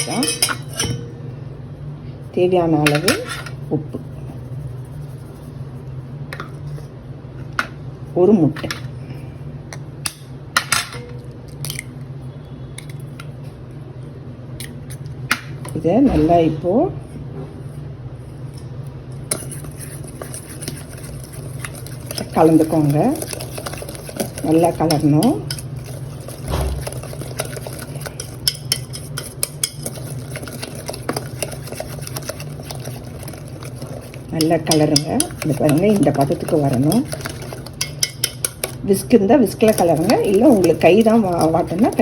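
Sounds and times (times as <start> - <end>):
steady low hum: 0.0 - 42.0
utensil stirring thick marinade: 4.0 - 5.8, 19.1 - 42.0
egg cracking against bowl: 19.3 - 38.8.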